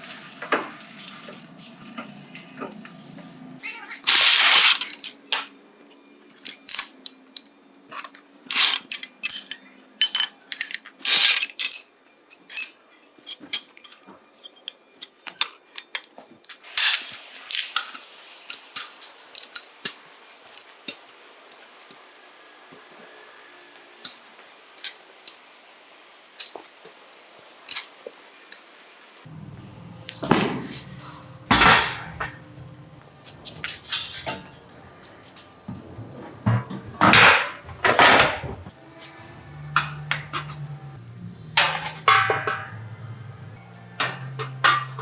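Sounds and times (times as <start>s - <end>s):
metal parts and tools clinking: 4.1s - 5.6s, 6.3s - 18.0s, 33.2s - 35.5s, 44.0s - 45.0s.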